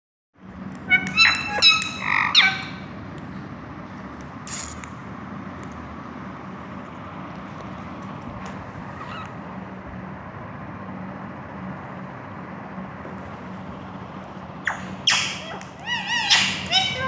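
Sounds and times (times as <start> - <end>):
low background hum: 0.4 - 17.0
parrot angry calls: 0.9 - 2.9, 8.8 - 9.4, 14.7 - 17.0.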